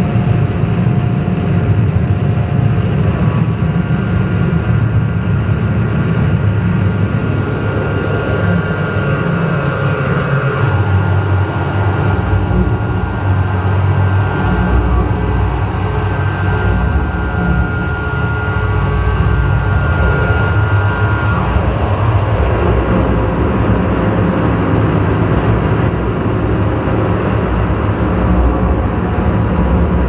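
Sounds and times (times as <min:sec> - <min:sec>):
deep synthesizer drone: 0:00.0 - 0:30.0
sustained higher synth tones: 0:06.8 - 0:30.0.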